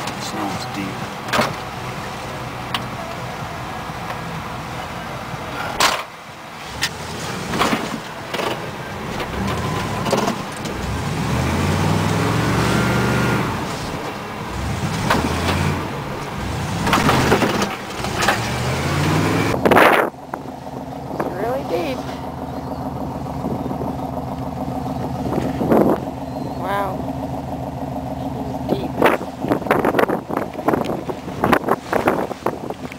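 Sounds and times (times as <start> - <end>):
truck engine revving: 0.0 - 32.9
truck knocks and rattles: 1.2 - 1.8, 6.8 - 12.6, 13.6 - 21.6.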